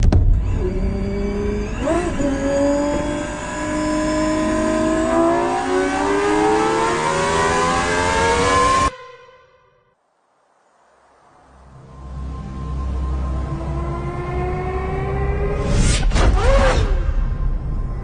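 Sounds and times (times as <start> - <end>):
car engine accelerating hard: 0.4 - 8.9, 12.9 - 17.1.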